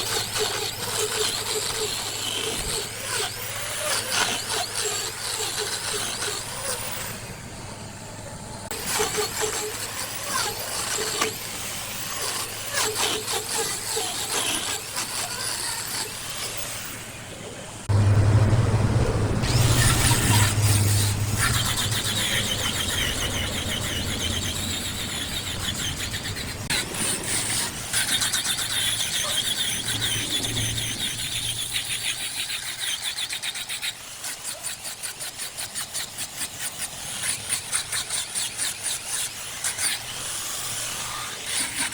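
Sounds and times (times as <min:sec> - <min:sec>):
low motor hum: 0:00.0 - 0:27.1
cutting tool squealing on wood: 0:00.0 - 0:41.9.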